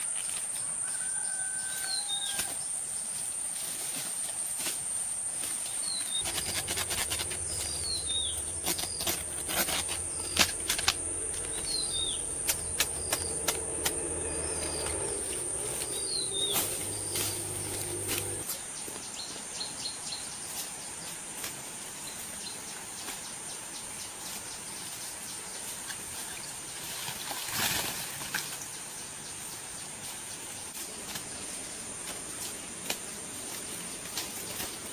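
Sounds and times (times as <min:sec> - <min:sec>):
high insect drone: 0:06.2 - 0:18.4
low steady hum: 0:06.2 - 0:18.4
scattered clicks: 0:06.2 - 0:18.4.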